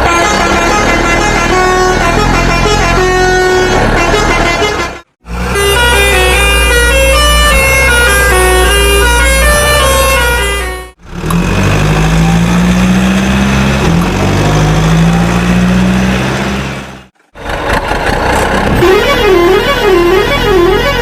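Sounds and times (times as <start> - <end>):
heavy truck engine straining: 0.0 - 21.0.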